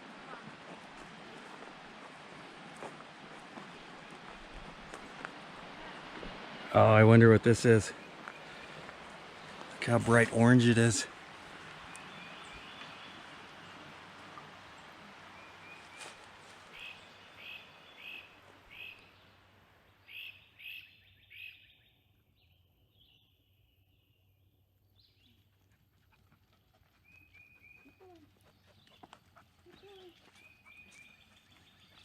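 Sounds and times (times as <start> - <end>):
bird chirping: 16.7 - 19.4, 20.0 - 25.5, 27.0 - 32.0.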